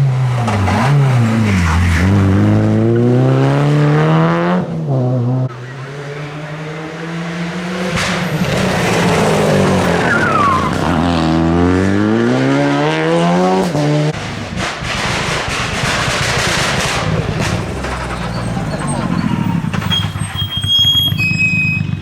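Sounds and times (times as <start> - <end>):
rally car engine revving: 0.0 - 22.0
tyre squeal: 7.8 - 11.1, 17.1 - 22.0
rough noisy rush: 14.1 - 21.2.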